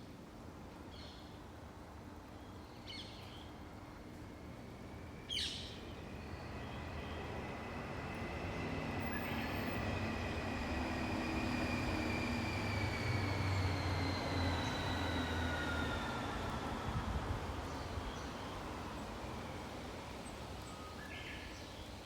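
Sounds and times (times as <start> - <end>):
passing vehicle rumble and whine: 4.5 - 20.7.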